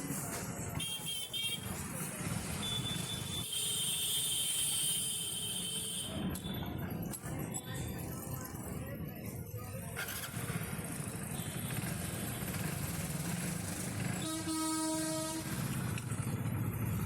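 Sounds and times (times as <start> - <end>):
engine rumbling: 6.2 - 17.0
horn sounding: 14.2 - 15.6.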